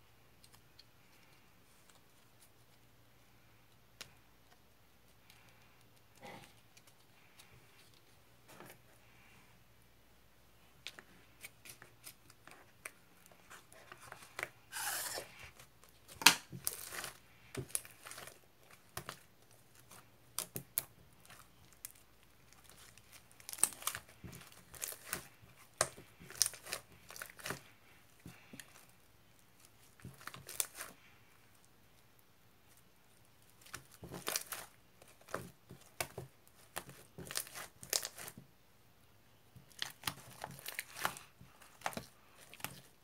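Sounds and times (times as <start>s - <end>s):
crinkling and tearing: 10.9s - 31.7s, 32.6s - 38.4s, 39.6s - 43.0s.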